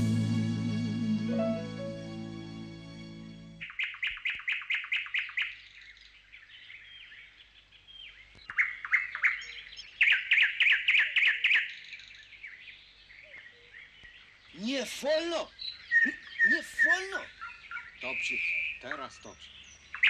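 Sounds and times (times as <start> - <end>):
song chord: 0.0 - 3.6
songbird chirping: 0.0 - 20.0.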